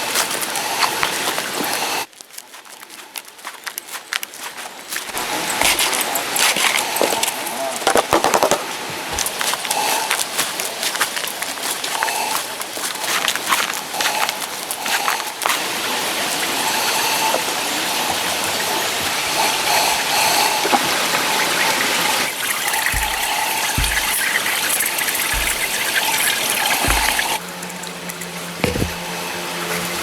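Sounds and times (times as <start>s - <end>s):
water rushing: 15.6s - 30.0s
soft low thuds: 22.9s - 24.4s, 25.3s - 26.0s, 26.8s - 27.4s, 28.6s - 29.0s.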